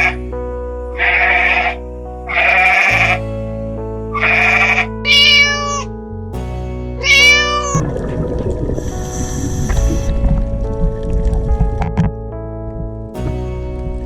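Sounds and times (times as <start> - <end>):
background music: 0.0 - 14.0
animal bleats: 1.0 - 3.2, 4.2 - 5.9, 7.0 - 7.8.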